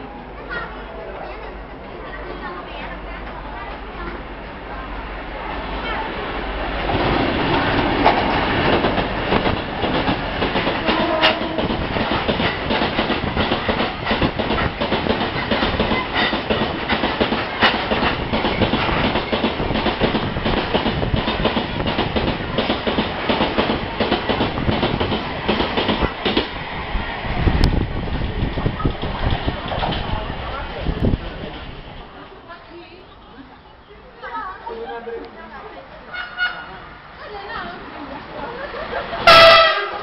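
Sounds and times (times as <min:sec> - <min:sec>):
train wheels clattering on rails: 0:06.7 - 0:26.7, 0:27.6 - 0:31.7.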